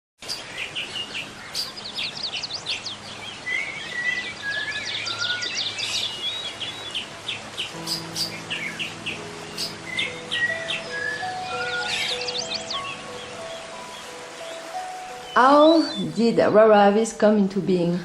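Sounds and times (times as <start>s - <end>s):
birds chirping and whistling: 0.2s - 16.4s
low held music notes: 7.7s - 18.0s.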